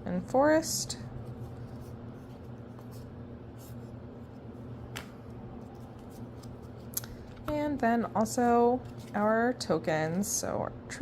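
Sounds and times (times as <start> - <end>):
steady low hum: 0.0 - 11.0
cards rustling: 1.2 - 9.3.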